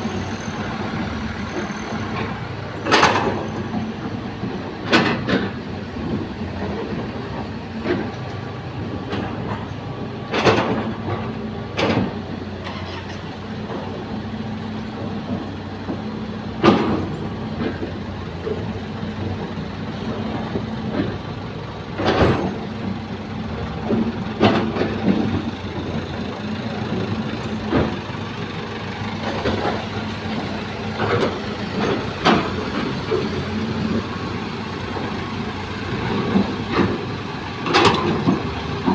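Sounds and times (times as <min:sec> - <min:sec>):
excavator diesel engine running: 0:00.0 - 0:38.9
sharp clanks and thuds: 0:10.3 - 0:12.2, 0:16.6 - 0:18.6, 0:22.0 - 0:22.7.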